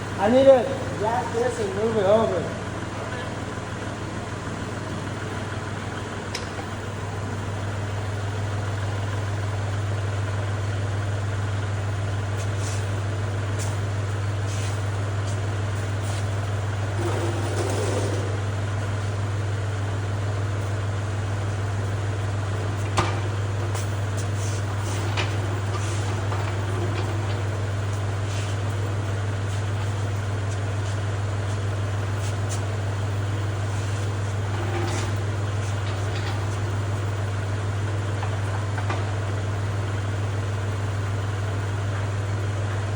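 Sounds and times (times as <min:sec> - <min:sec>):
tractor engine droning: 0:00.0 - 0:42.9.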